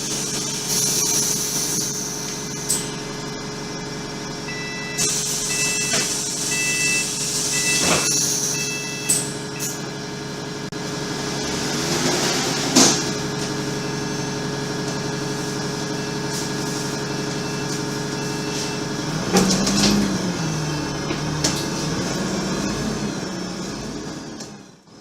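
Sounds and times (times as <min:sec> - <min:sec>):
bus engine idling: 0:00.0 - 0:25.0
short warning beeps: 0:04.5 - 0:09.8, 0:17.1 - 0:18.9.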